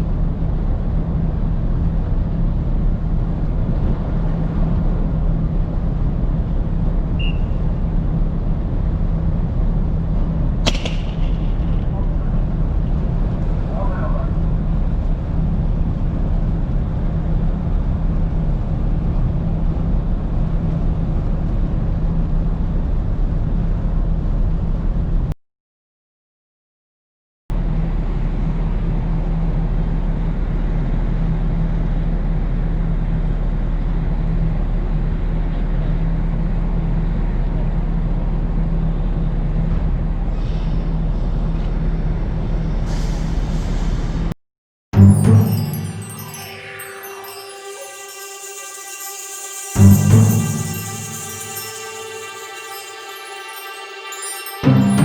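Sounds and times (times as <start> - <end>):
bright hiss: 45.1 - 55.0.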